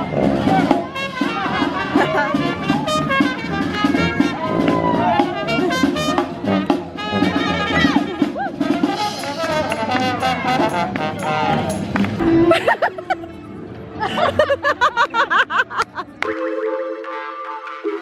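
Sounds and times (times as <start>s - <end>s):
jazz brass horns: 0.0s - 13.1s
drums: 0.0s - 13.2s.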